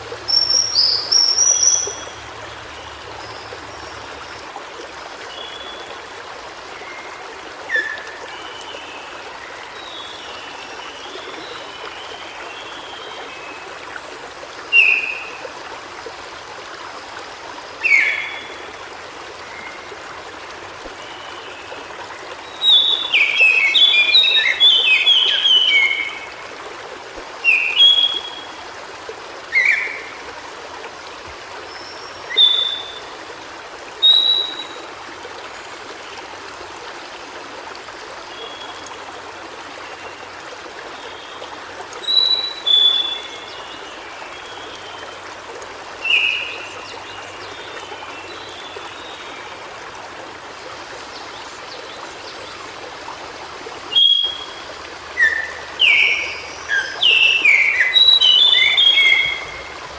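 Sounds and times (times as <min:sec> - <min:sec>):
stream rushing: 0:00.0 - 0:59.9
bird singing: 0:55.2 - 0:59.7.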